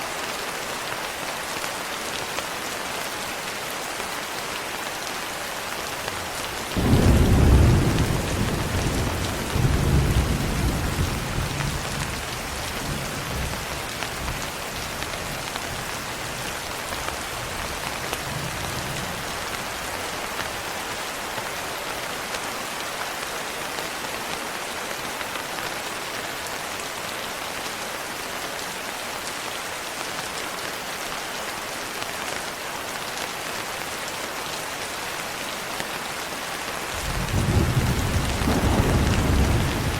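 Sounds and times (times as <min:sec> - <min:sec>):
steady rain falling: 0:00.0 - 0:39.9
rolling thunder: 0:06.8 - 0:12.2, 0:37.0 - 0:39.9.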